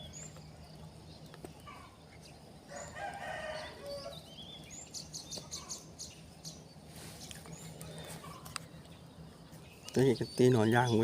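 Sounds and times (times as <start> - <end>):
small birds chirping: 0.0 - 11.0
rooster crowing: 2.7 - 4.2.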